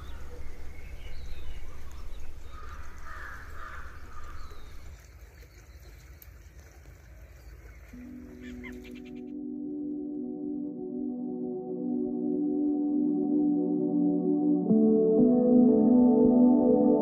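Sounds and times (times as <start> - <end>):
steady low rumble: 0.0 - 4.9
soft ambient music: 0.0 - 5.1, 6.3 - 17.0.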